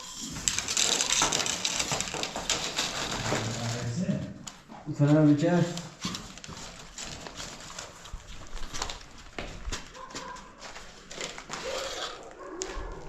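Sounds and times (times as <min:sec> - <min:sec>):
irregular clicks and knocks: 0:00.0 - 0:03.5.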